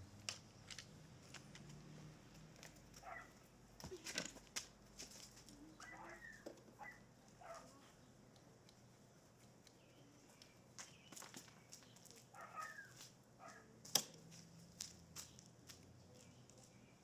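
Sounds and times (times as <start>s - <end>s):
faint chirp-like calls: 5.5s - 8.2s
faint clicks and taps: 8.3s - 12.3s.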